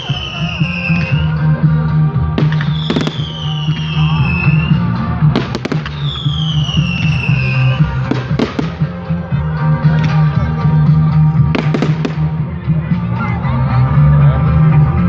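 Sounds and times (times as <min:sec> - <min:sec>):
falling firework whistles: 0:00.0 - 0:01.3, 0:02.4 - 0:04.8, 0:05.7 - 0:08.0
music with low bass: 0:00.0 - 0:15.0
fireworks bangs: 0:02.4 - 0:03.8, 0:05.4 - 0:07.2, 0:08.1 - 0:09.0, 0:11.5 - 0:12.3.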